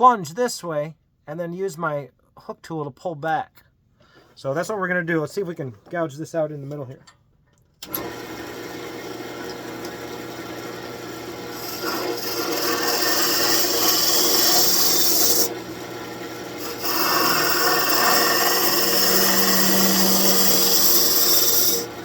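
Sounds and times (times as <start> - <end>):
lathe motor hum: 7.9 - 22.0
gouge scraping wood: 11.6 - 15.6, 16.6 - 21.9.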